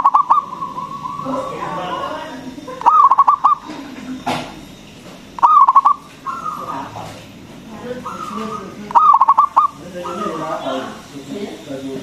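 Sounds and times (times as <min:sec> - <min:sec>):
dove cooing: 0:00.0 - 0:04.0, 0:05.4 - 0:11.0.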